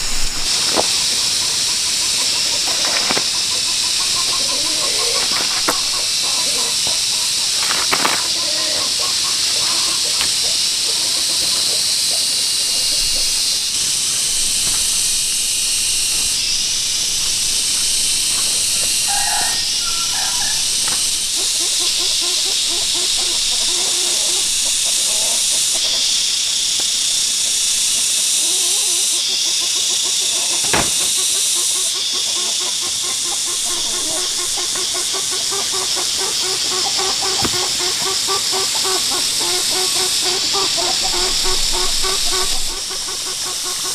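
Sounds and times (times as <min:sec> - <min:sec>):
loud high hiss: 0:00.0 - 0:29.6
chickens clucking: 0:00.0 - 0:43.9.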